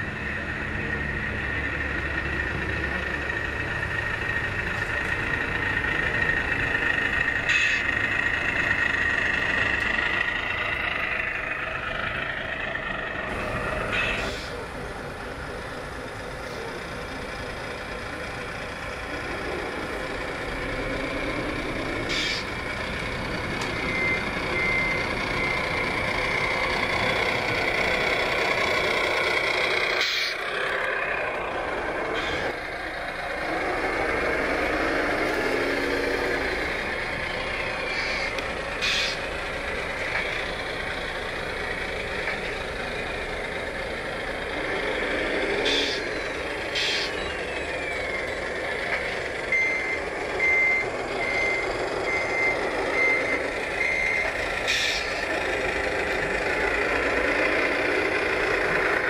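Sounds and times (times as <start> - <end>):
model truck engine noise: 0.0 - 59.0
reversing beeps: 23.6 - 26.6, 49.5 - 54.4.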